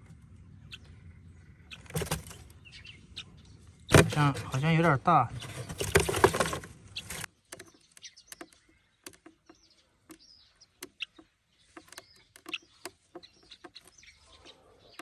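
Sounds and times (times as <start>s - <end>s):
light taps and scratches: 3.9s - 10.2s, 10.8s - 15.0s.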